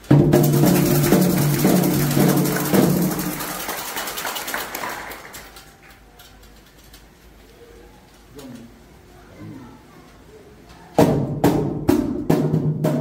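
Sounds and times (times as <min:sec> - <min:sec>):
hand drums and percussion: 0:00.0 - 0:03.8, 0:11.1 - 0:13.0.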